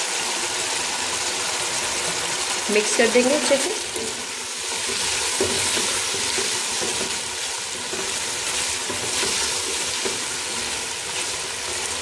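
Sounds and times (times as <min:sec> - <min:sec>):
chicken sizzling in hot oil: 0:00.0 - 0:12.0
metal spoon stirring: 0:03.8 - 0:12.0.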